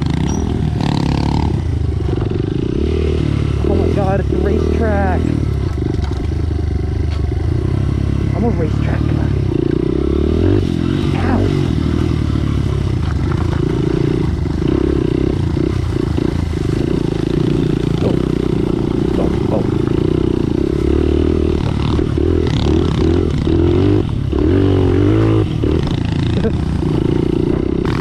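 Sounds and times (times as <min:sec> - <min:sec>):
bike knocks and rattles: 0:00.0 - 0:02.9, 0:05.1 - 0:07.6, 0:11.8 - 0:28.0
small motorbike engine running: 0:00.0 - 0:28.0.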